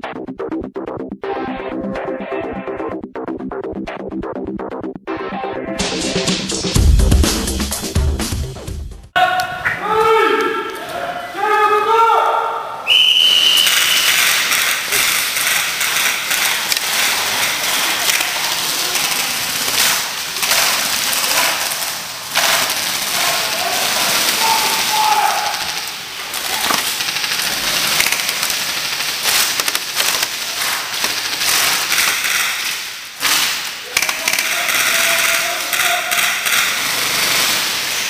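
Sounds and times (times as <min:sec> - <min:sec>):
players shouting: 0:09.2 - 0:27.0, 0:33.8 - 0:36.8
short high whistle tone: 0:12.9 - 0:14.3
airsoft guns firing bursts: 0:13.5 - 0:38.0.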